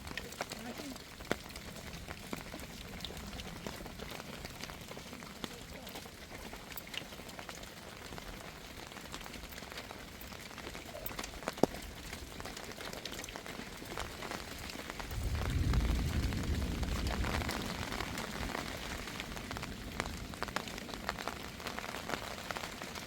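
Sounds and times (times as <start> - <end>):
raindrops tapping: 0.0 - 23.0
steady rain falling: 0.0 - 23.0
low rumble: 15.1 - 19.2.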